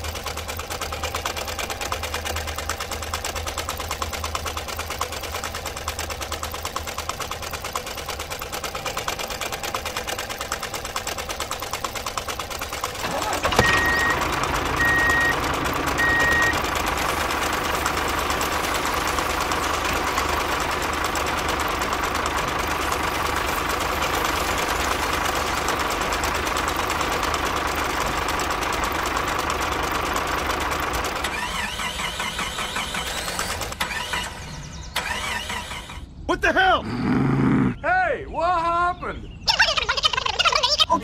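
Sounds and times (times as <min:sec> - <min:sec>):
small motor whining: 0:01.5 - 0:36.1
short high beeps: 0:16.0 - 0:16.6.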